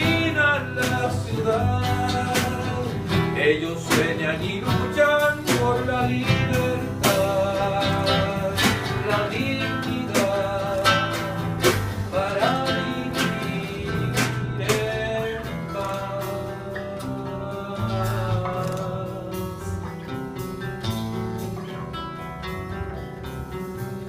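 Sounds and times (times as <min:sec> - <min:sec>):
low bass: 0:00.0 - 0:24.0
strummed acoustic guitar: 0:00.0 - 0:24.0.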